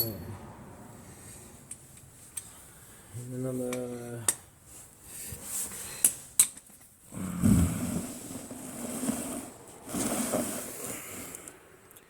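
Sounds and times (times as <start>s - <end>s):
sharp metallic clinks: 0.0s - 0.3s.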